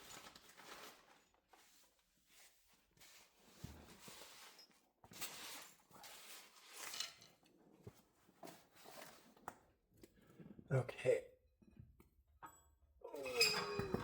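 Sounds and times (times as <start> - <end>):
rustling handling noises: 0.0 - 9.4.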